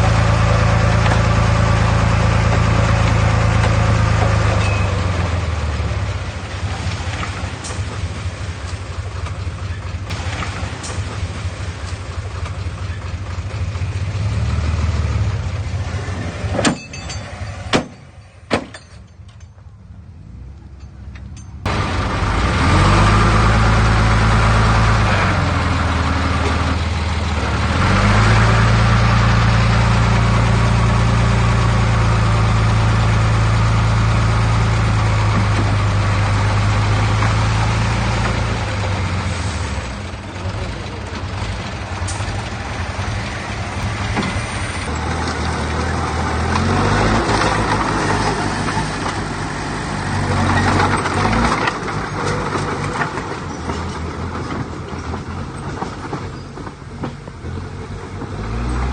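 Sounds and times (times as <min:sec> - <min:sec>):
heavy diesel engine running: 0:00.0 - 0:18.9, 0:20.4 - 0:58.9
sharp metallic knocks: 0:16.5 - 0:19.6.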